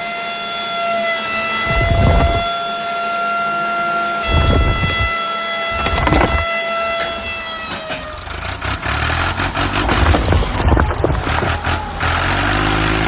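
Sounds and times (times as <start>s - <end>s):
horn steady tone: 0.0s - 8.4s
vehicle engine rumbling: 1.6s - 2.5s, 4.2s - 13.0s
rattling clicks: 5.8s - 7.2s.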